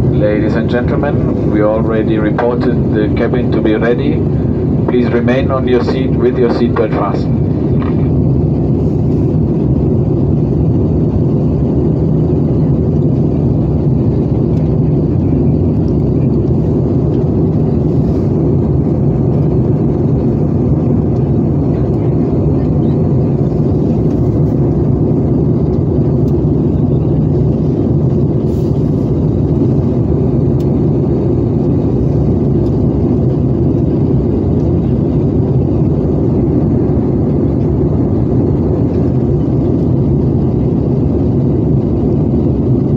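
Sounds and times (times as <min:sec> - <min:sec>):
airplane cabin hum and air rush: 0:00.0 - 0:42.9.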